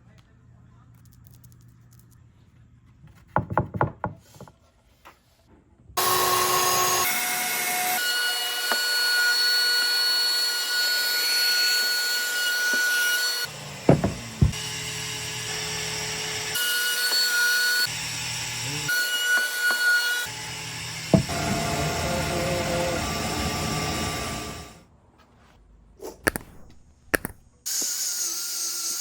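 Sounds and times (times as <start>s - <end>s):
power tool whining on wood: 6.0s - 24.8s
sharp knocks: 13.9s - 14.6s, 21.1s - 21.3s.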